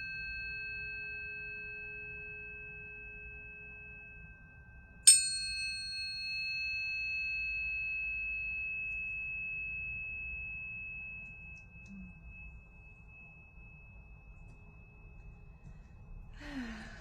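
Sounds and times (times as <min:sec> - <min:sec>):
tuning fork ringing: 0:00.0 - 0:17.0
faint second fork tone: 0:05.9 - 0:15.1.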